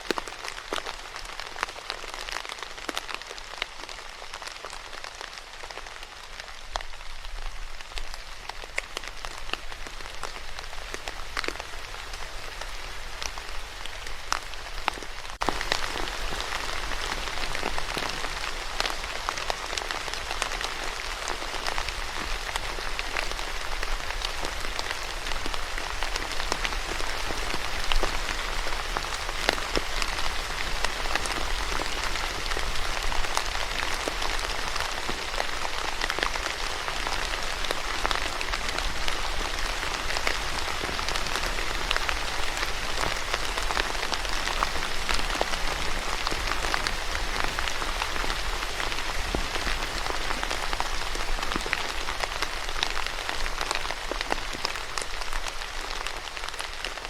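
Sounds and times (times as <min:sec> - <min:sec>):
rain hiss: 0:00.0 - 0:57.0
raindrop ticks: 0:00.0 - 0:57.0.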